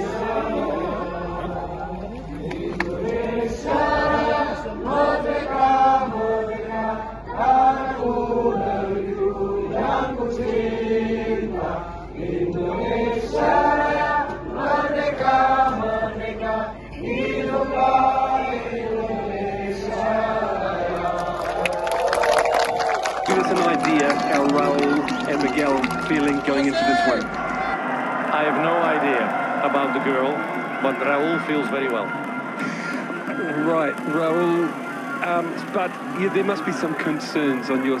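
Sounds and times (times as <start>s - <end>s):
group of voices singing: 0.0s - 22.0s.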